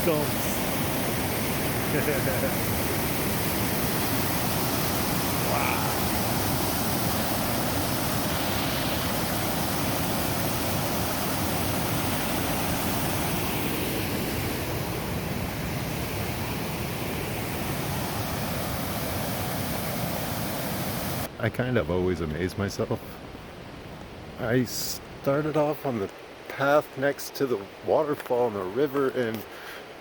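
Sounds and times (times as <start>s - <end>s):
waterfall roaring: 0.0s - 21.3s.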